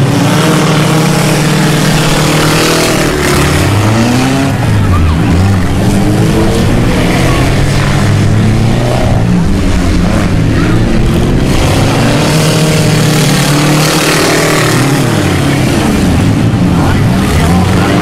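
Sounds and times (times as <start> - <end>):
car engines racing: 0.0 - 18.0.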